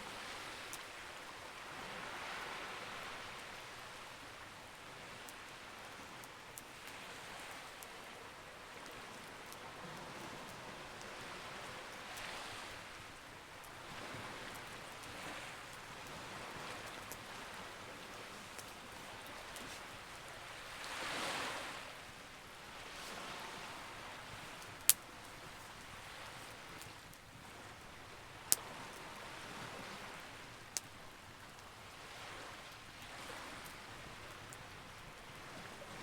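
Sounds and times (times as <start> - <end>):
campfire crackling and popping: 10.3 - 21.0, 22.0 - 29.4, 30.0 - 31.9.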